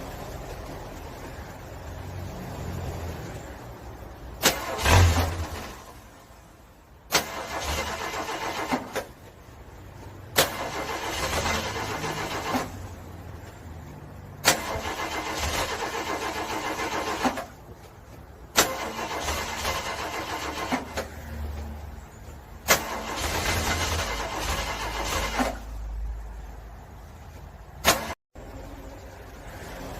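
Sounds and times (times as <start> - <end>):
car engine cranking: 4.2 - 6.3, 7.0 - 13.6, 14.3 - 21.3, 22.0 - 25.9.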